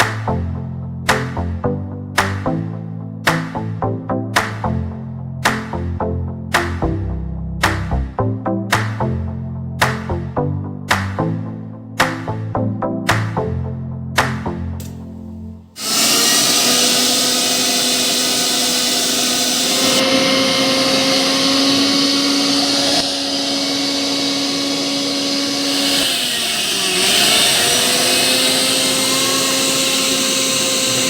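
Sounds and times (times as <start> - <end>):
mixer grinder motor whine: 15.8 - 31.0.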